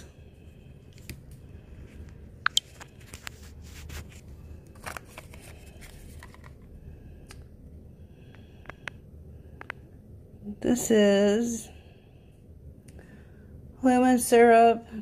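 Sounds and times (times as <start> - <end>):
packaging clicks and rustles: 2.6 - 6.7.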